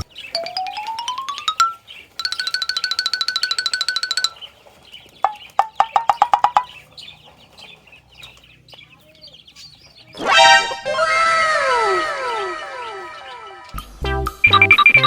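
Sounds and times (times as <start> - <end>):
soft chirping: 0.0 - 13.8
chicken clucking: 4.3 - 13.8
electronic sound effect sweeping: 10.2 - 15.0.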